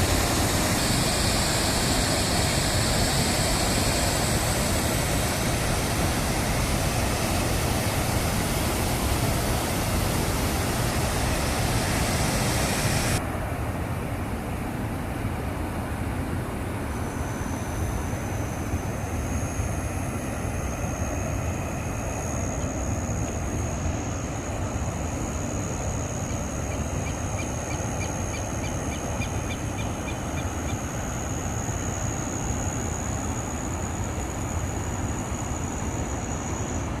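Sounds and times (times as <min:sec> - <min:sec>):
steady high-pitched tone: 0:00.0 - 0:13.2
water rushing over spillway: 0:00.0 - 0:13.2.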